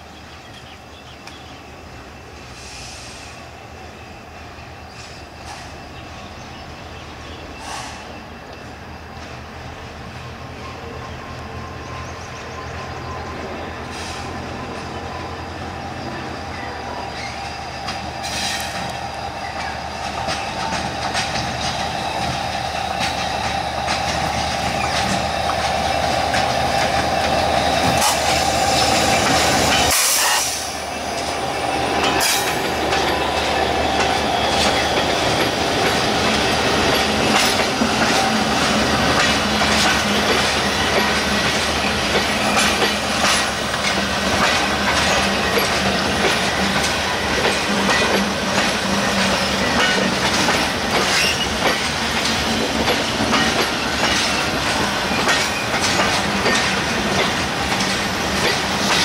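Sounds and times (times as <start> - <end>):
diesel locomotive drone: 0.0 - 59.0
wheels clicking over rail joints: 17.2 - 30.5, 31.1 - 59.0.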